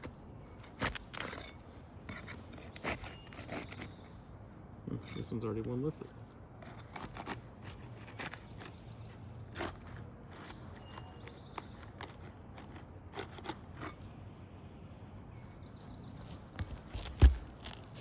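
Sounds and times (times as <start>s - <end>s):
shingle seals cracking and snapping: 0.0s - 3.9s, 9.5s - 13.9s, 16.5s - 18.0s.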